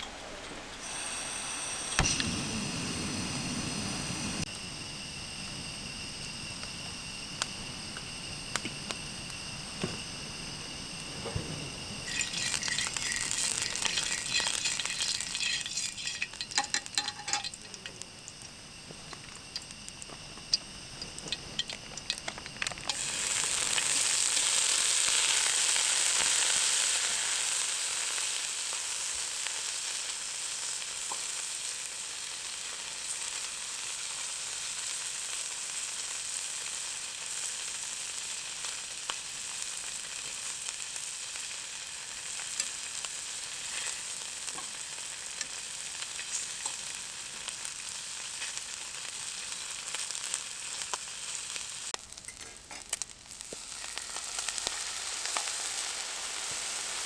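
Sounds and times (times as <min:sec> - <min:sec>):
food sizzling in a pan: 0:00.2 - 0:57.0
utensil clinking and scraping: 0:12.0 - 0:18.0.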